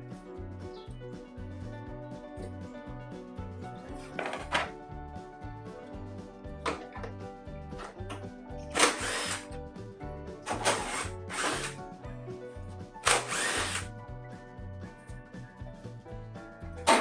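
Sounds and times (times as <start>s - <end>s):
background music: 0.0s - 17.0s
power tool bursts: 8.7s - 9.5s, 10.5s - 11.8s, 13.0s - 13.9s.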